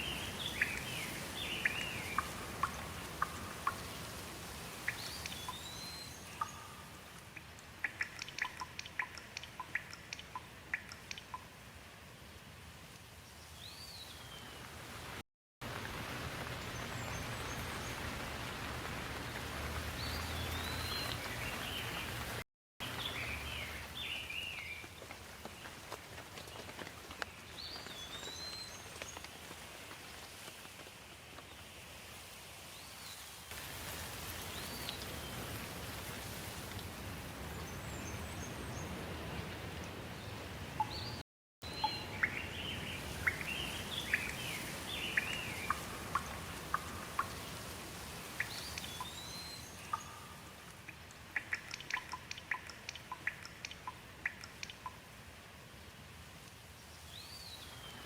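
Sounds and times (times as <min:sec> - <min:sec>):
birds chirping: 0:00.0 - 0:04.1, 0:04.8 - 0:11.5, 0:19.8 - 0:24.9, 0:37.5 - 0:47.6, 0:48.3 - 0:55.0
steady rain falling: 0:00.0 - 0:58.0.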